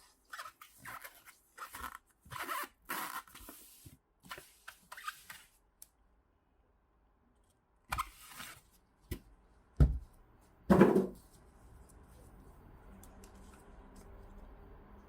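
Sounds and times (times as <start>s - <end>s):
objects knocked and handled: 9.8s - 10.1s, 10.7s - 11.3s.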